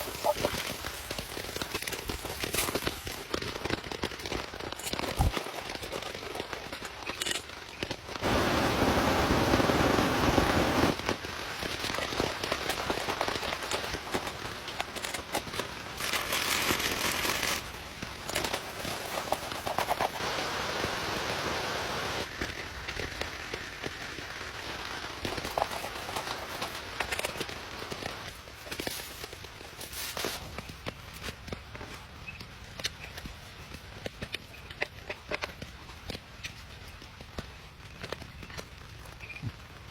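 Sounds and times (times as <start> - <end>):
crackling clicks and taps: 0.0 - 8.8, 10.3 - 20.3, 22.2 - 39.9
rain noise: 0.0 - 32.6
light hiss: 7.1 - 34.5.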